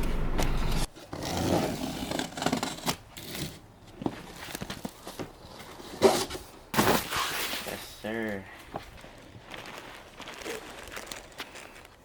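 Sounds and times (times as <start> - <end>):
packaging crinkling and rustling: 9.0 - 12.0.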